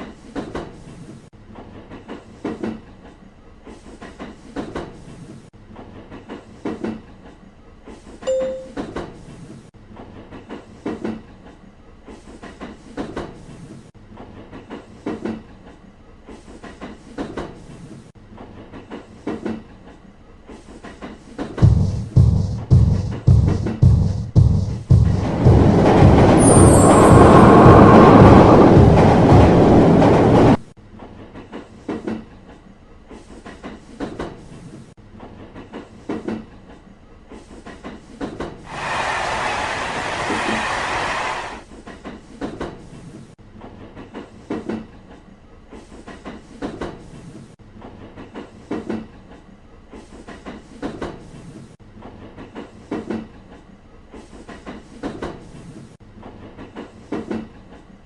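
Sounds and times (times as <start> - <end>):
train wheels clickety-clack: 0.0 - 58.0
loud rushing noise: 24.9 - 30.5, 38.7 - 41.6.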